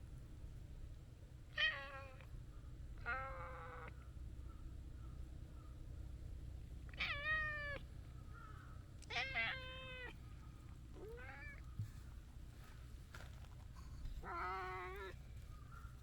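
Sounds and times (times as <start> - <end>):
cat meowing: 7.0 - 7.8, 9.1 - 10.2, 11.0 - 11.6, 14.2 - 15.2.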